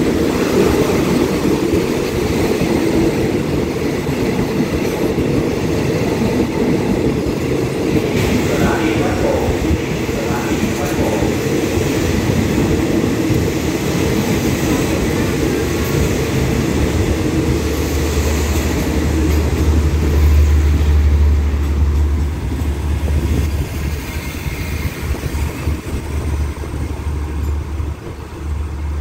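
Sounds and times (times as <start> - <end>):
train coaches rolling past: 0.0 - 29.0.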